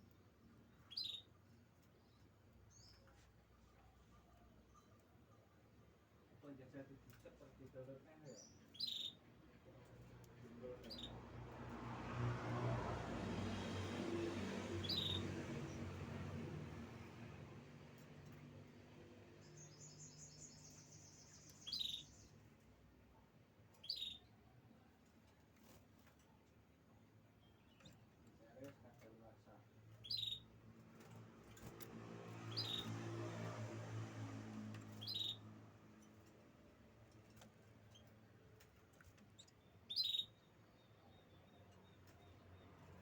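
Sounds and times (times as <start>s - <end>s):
canary trilling: 0.8s - 1.3s, 14.8s - 15.2s, 21.4s - 22.2s, 30.0s - 30.5s, 32.4s - 33.0s, 34.9s - 35.5s, 39.4s - 40.4s
loud canary chirp: 0.8s - 1.4s, 8.3s - 9.2s, 10.6s - 11.2s, 14.8s - 15.8s, 19.4s - 22.4s, 23.7s - 24.4s, 29.9s - 31.7s, 32.3s - 33.2s, 34.8s - 36.3s, 39.4s - 42.4s.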